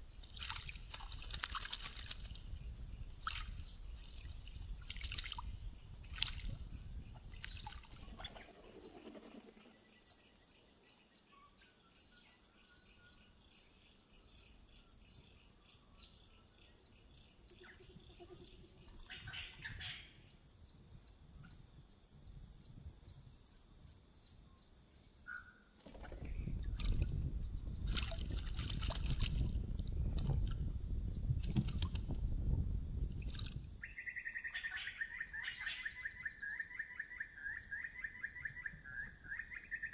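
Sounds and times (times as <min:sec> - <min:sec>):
bird calls: 0:03.2 - 0:11.5, 0:16.1 - 0:20.5, 0:25.2 - 0:39.9.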